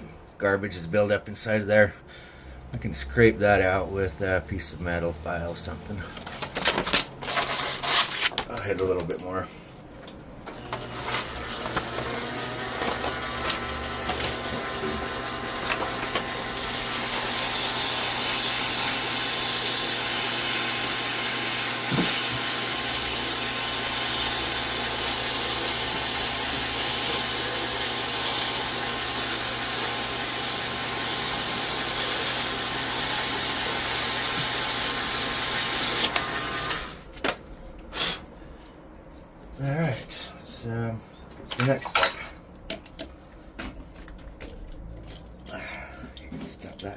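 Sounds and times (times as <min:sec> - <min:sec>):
electric tool spinning hum: 0:10.6 - 0:37.0.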